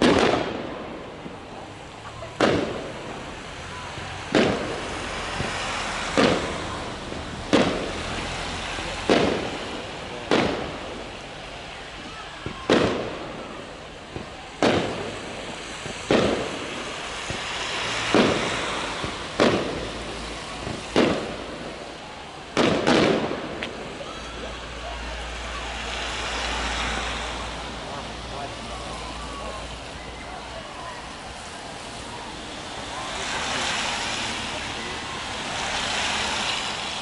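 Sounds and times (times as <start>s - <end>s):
firework shells bursting: 12.4s - 21.9s, 22.5s - 27.7s.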